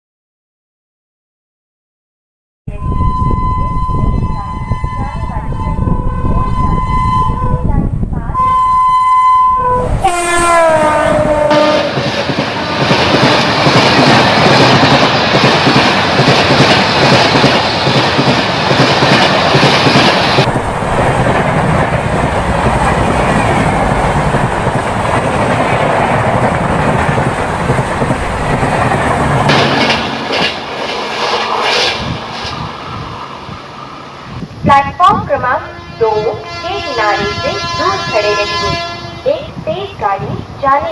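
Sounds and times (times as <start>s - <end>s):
train horn: 2.8s - 7.8s, 8.4s - 13.7s, 35.5s - 39.4s
train coaches rushing past: 9.7s - 40.9s
wheel clatter over rails: 11.9s - 32.6s.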